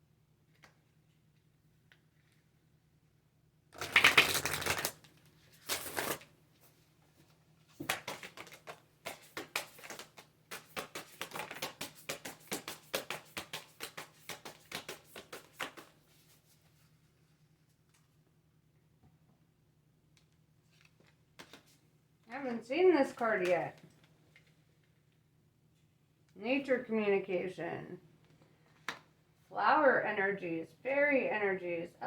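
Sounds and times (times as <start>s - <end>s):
cards rustling while shuffled: 3.8s - 6.8s, 7.7s - 17.1s, 20.7s - 21.9s.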